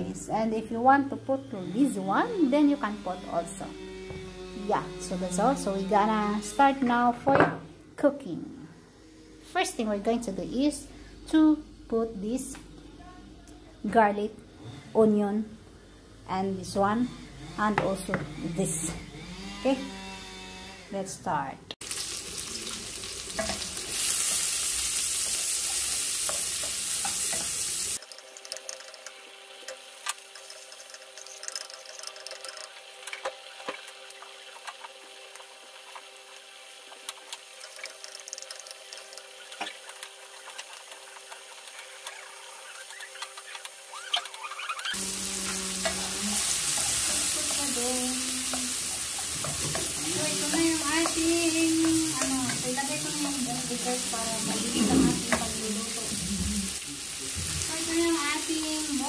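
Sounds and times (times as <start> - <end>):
food sizzling in hot oil: 21.8 - 59.0
wooden spatula scraping: 37.2 - 55.7.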